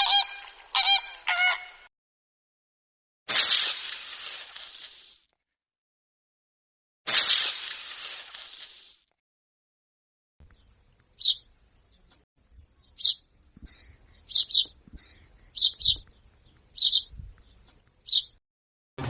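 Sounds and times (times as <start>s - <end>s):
animal chirps: 0.0s - 1.9s, 12.8s - 16.1s.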